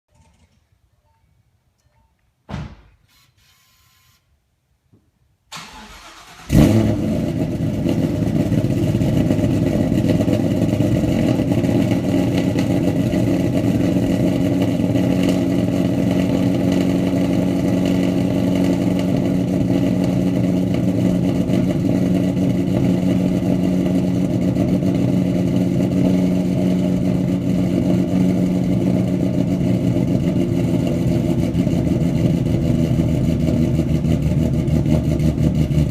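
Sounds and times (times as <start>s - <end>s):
car engine cranking and starting: 5.5s - 35.9s
loud engine idle: 7.2s - 35.9s.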